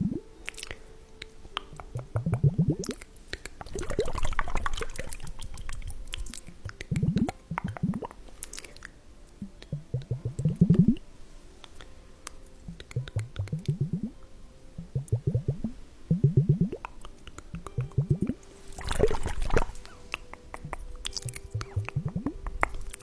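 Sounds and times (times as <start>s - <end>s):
liquid squelching and gurgling: 1.7s - 11.0s, 12.7s - 14.2s, 14.8s - 23.0s.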